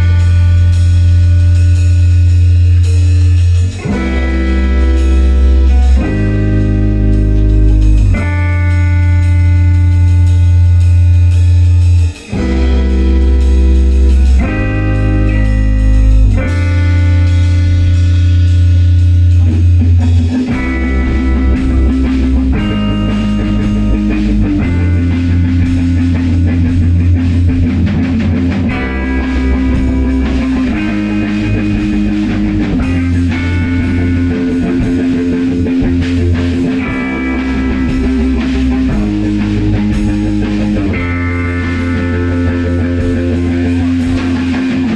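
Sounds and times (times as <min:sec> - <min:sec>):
bass guitar: 0:00.0 - 0:44.9
drums: 0:00.0 - 0:44.9
electric guitar chords: 0:00.0 - 0:44.9.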